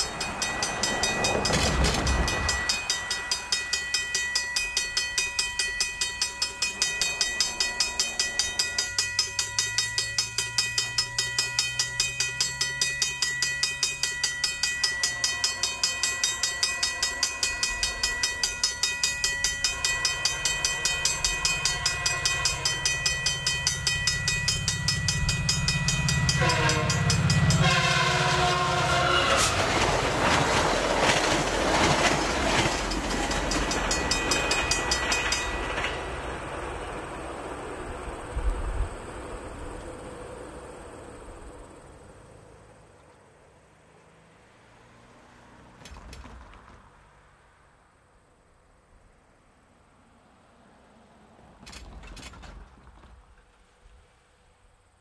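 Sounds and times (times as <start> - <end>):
train rumbling past: 0.0 - 48.8
locomotive horn: 26.0 - 29.9.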